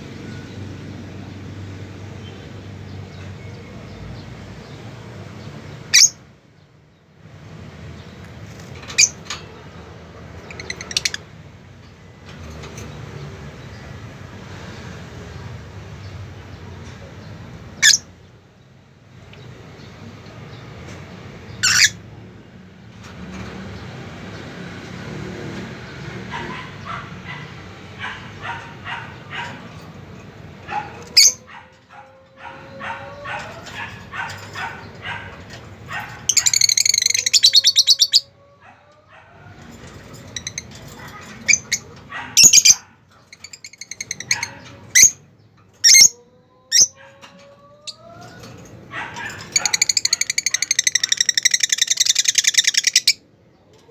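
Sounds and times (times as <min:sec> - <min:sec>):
shrill bird calls: 0:47.8 - 0:53.2.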